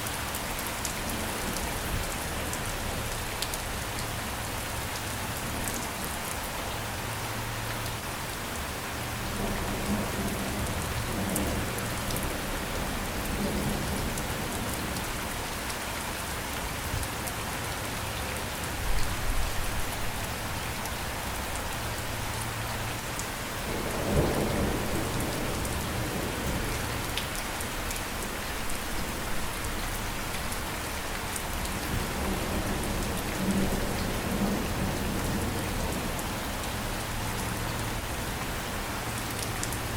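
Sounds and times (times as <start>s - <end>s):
thunder rumbling: 23.7s - 27.1s.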